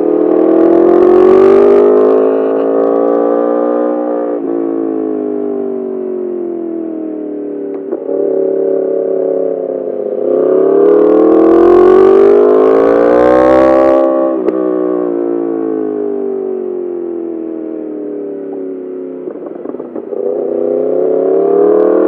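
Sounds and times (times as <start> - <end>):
motorcycle engine accelerating: 0.0 - 22.0
exhaust crack: 18.4 - 20.6.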